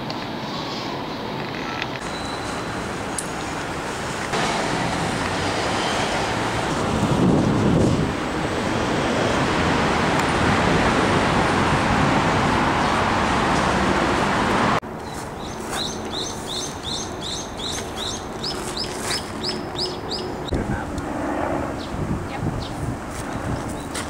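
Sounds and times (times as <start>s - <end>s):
loud rushing noise: 2.0s - 14.8s
bird chirping: 15.0s - 20.5s.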